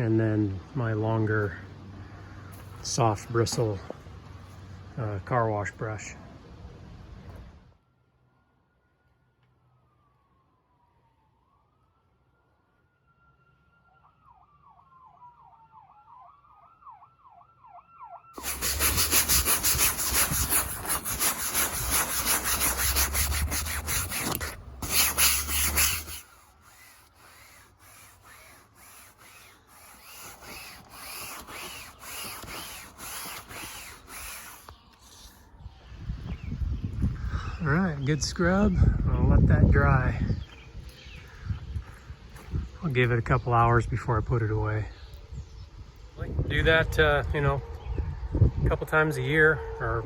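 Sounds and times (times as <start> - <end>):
distant siren wailing and yelping: 8.4 - 18.4, 34.6 - 36.7
brush scrubbing wet fabric: 18.4 - 35.4.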